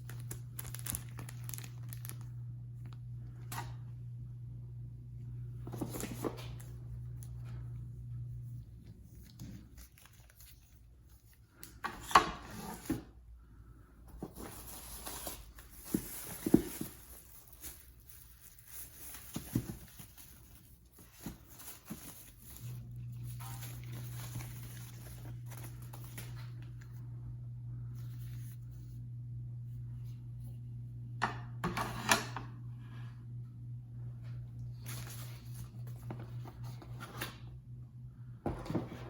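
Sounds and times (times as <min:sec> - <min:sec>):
packaging rustling and crinkling: 0:00.0 - 0:03.0, 0:09.2 - 0:10.9, 0:14.2 - 0:26.8
low hum: 0:00.0 - 0:10.5, 0:19.8 - 0:31.6.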